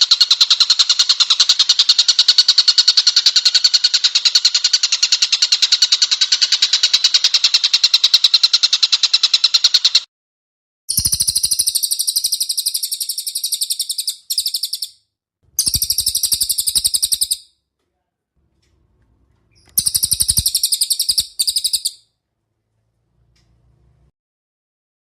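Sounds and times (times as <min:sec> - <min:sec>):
songbird trilling: 0:10.9 - 0:15.0, 0:15.6 - 0:17.5, 0:19.5 - 0:22.0.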